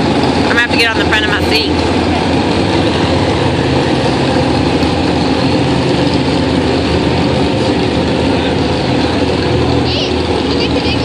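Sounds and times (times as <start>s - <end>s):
truck engine running loud: 0.0s - 11.0s.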